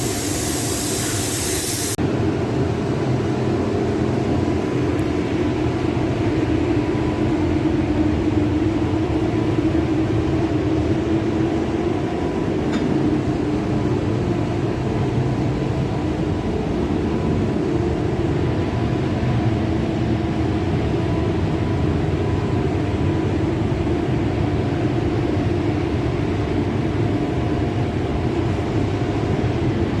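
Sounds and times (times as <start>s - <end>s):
machine droning: 0.0s - 2.0s.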